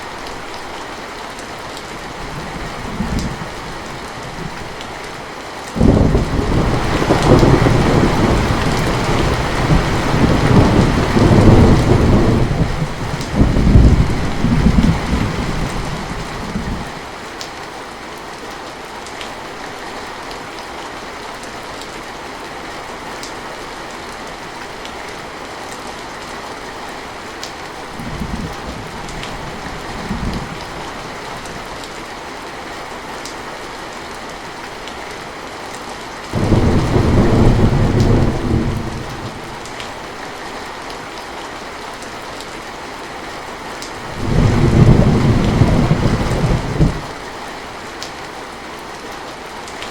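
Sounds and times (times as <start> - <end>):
heavy rain: 0.0 - 49.9
thunder rumbling: 5.8 - 16.9, 36.4 - 39.8, 44.1 - 47.2.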